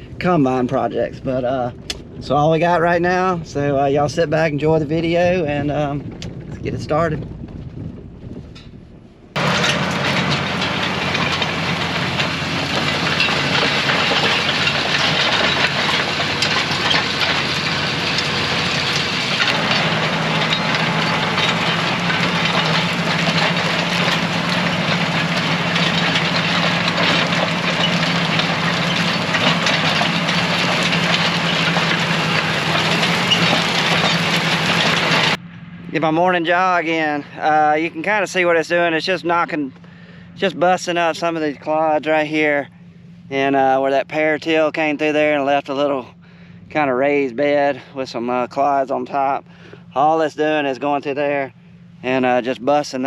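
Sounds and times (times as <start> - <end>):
rattling rumbling noise: 0.0 - 53.0
tractor engine running: 0.0 - 53.0.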